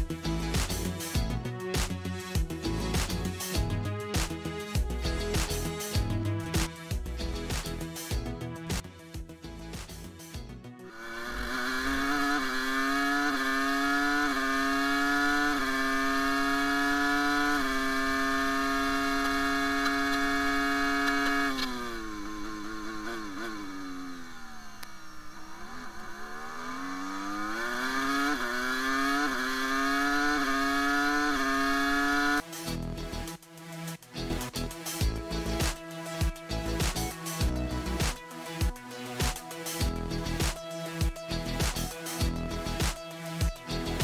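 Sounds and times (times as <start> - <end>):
racing car engine shifting gears: 10.9 - 32.4.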